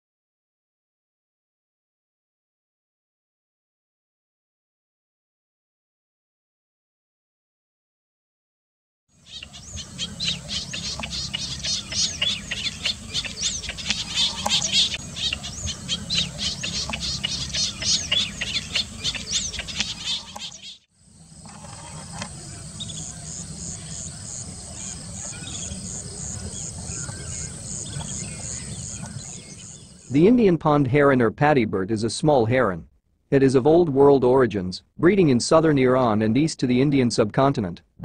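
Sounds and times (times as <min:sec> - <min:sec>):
small birds chirping: 0:09.1 - 0:30.2
insect pulsing trill: 0:09.2 - 0:30.1.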